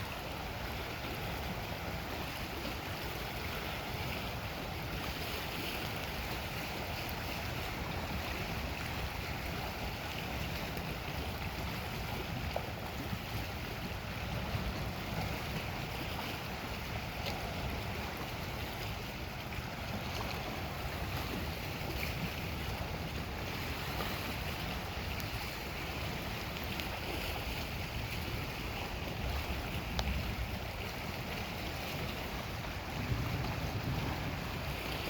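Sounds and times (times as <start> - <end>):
lake waves washing: 0.0 - 35.0
wind buffeting microphone: 0.0 - 35.0.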